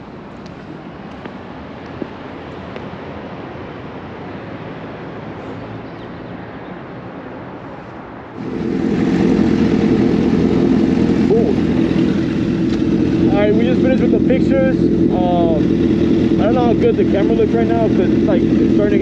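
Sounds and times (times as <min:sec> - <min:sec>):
motorcycle engine running: 0:08.4 - 0:19.0.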